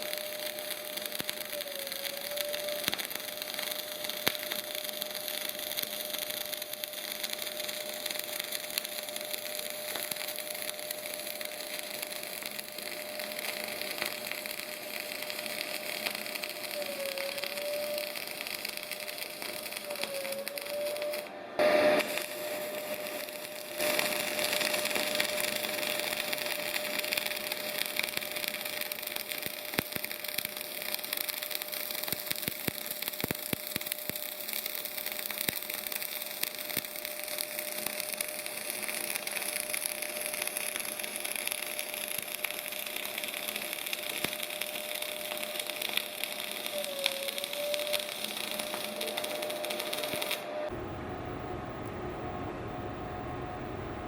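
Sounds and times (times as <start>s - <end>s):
high whine: 0.0s - 32.5s, 35.1s - 54.0s
welding arc crackling: 0.0s - 50.9s.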